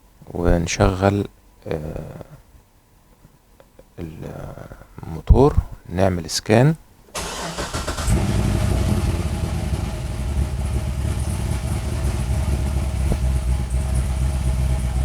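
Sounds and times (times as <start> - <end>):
car engine idling: 7.2 - 15.0.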